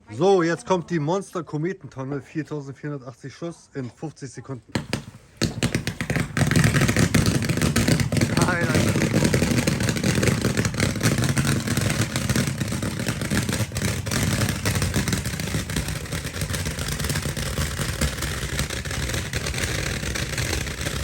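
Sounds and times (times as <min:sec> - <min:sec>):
firework barrage rattle: 0:04.7 - 0:21.0.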